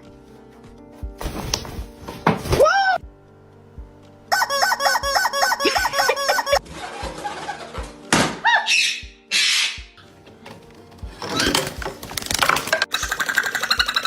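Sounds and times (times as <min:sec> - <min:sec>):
bird squeaky calls: 0:04.3 - 0:06.6, 0:08.5 - 0:10.0, 0:12.9 - 0:14.0.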